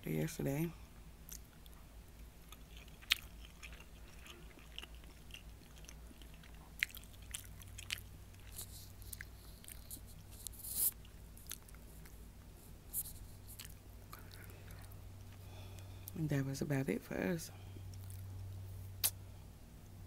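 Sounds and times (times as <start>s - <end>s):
faint low hum: 0.0s - 20.0s
wet chewing mouth clicks: 2.4s - 12.2s.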